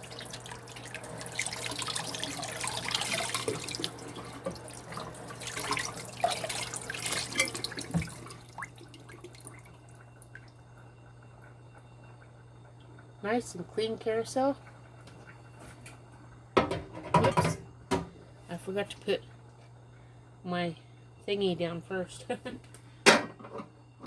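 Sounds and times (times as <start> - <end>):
kitchen tap running: 0.0 - 15.4.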